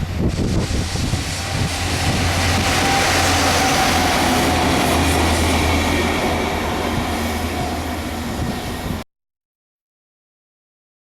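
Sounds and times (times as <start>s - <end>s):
train rumbling on rails: 0.0s - 9.0s.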